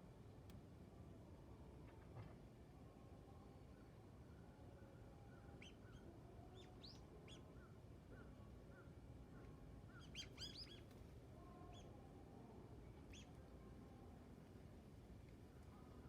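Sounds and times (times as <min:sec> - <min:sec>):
faint bird chirps: 0:09.9 - 0:10.8.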